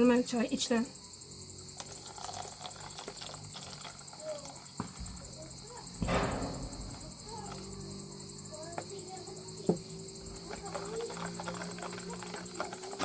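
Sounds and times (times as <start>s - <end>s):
crickets chirping: 0.0s - 13.0s
sharp knock: 6.0s - 7.1s.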